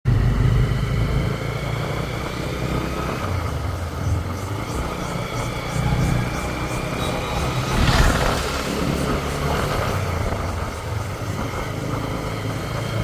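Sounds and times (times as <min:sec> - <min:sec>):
motorcycle engine rumbling: 0:00.1 - 0:13.0.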